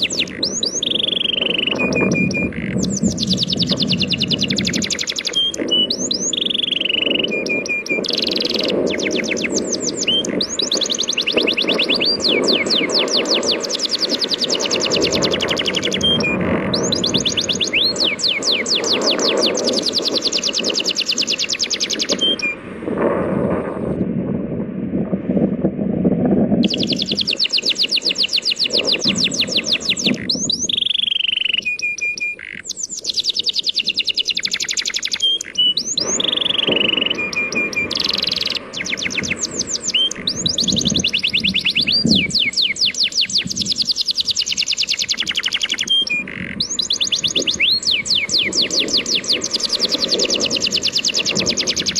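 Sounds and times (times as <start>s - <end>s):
songbird singing fast trills: 0.0s - 22.6s, 26.6s - 51.9s
sea waves: 35.2s - 40.3s.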